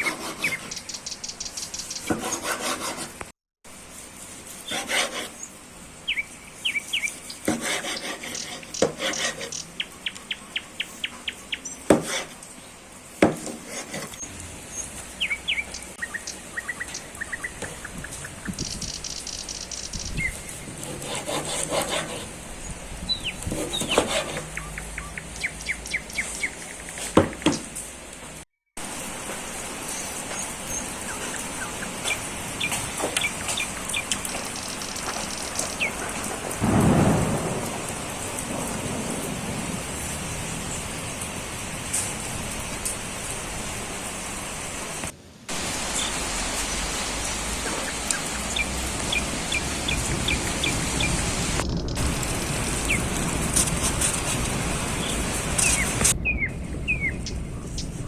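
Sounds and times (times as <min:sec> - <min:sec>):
birds chirping and trilling: 0:00.0 - 0:02.7, 0:04.6 - 0:12.8, 0:14.0 - 0:27.8, 0:29.9 - 0:37.6, 0:45.8 - 0:58.0
steady hiss: 0:28.8 - 0:56.2
low rumble: 0:48.4 - 0:58.0.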